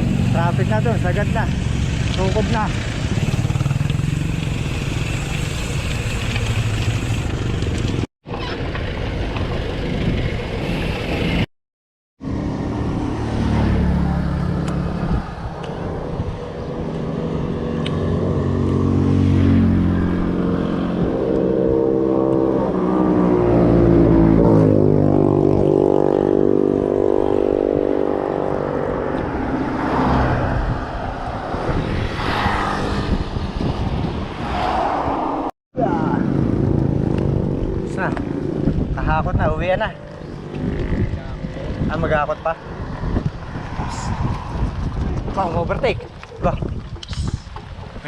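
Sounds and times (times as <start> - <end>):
road and wind noise: 0.0 - 11.5, 12.2 - 48.0
vehicle engine accelerating: 12.2 - 45.6.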